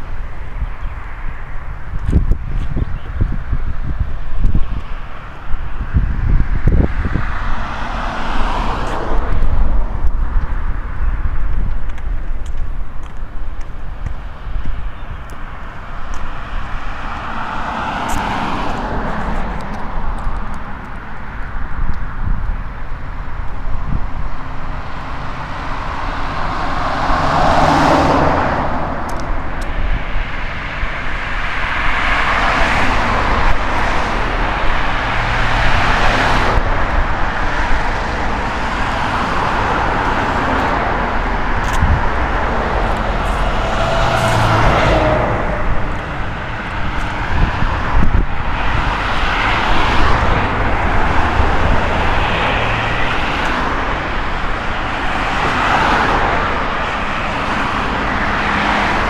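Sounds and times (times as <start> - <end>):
cars passing: 0.0 - 59.0
low traffic rumble: 0.0 - 59.0.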